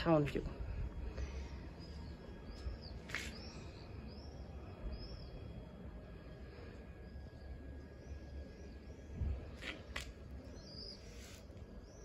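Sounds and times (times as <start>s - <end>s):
small bird chirping: 10.4s - 12.0s.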